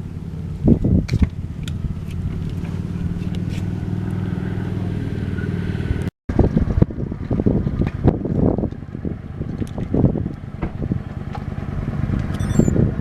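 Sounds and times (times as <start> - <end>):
motorcycle engine running: 0.0 - 13.0
wind buffeting microphone: 0.6 - 3.5, 6.3 - 13.0.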